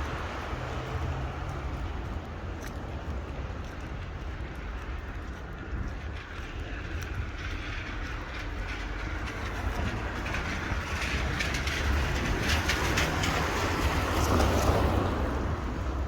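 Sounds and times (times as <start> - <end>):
light ticks: 0.4 - 7.2.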